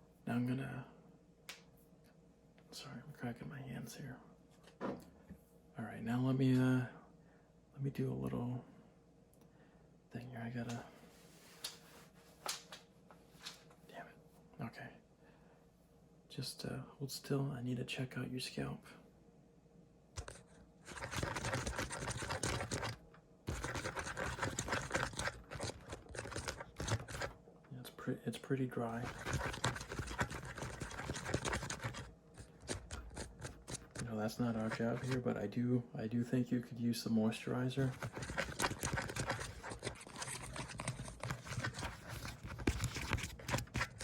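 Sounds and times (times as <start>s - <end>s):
fingertips scratching microphone: 20.2s - 27.4s, 28.8s - 35.3s, 37.8s - 44.0s.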